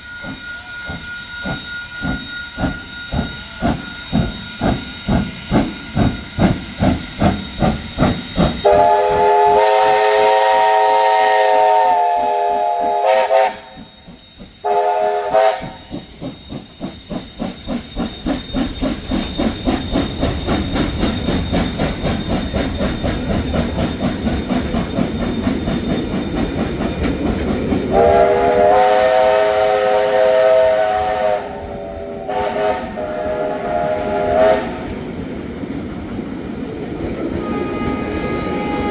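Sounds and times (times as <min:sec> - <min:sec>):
chime whistle blasts: 0:00.0 - 0:23.4
steam locomotive exhaust beats: 0:00.0 - 0:38.9.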